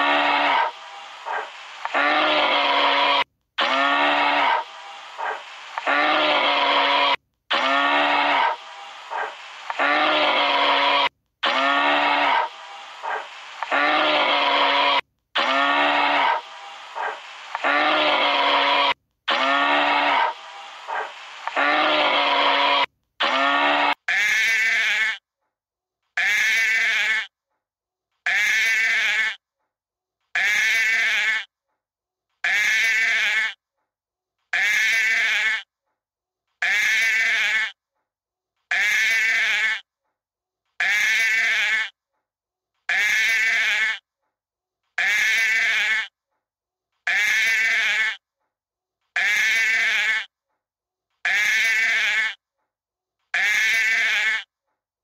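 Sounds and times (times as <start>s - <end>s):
sheep bleating: 0.0s - 25.2s, 26.2s - 27.3s, 28.3s - 29.4s, 30.4s - 31.5s, 32.4s - 33.6s, 34.5s - 35.7s, 36.6s - 37.8s, 38.7s - 39.9s, 40.8s - 42.0s, 42.9s - 44.0s, 45.0s - 46.2s, 47.1s - 48.2s, 49.2s - 50.3s, 51.3s - 52.4s, 53.4s - 54.5s.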